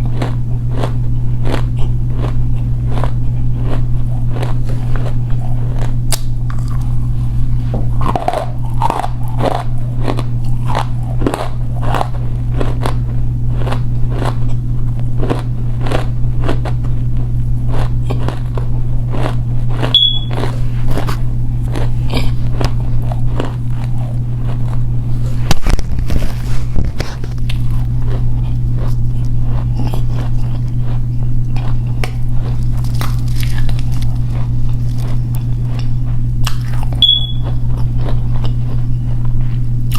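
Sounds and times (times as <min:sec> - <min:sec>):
dry crackly crunching bites: 0:00.0 - 0:39.9
steady low hum: 0:00.0 - 0:39.9.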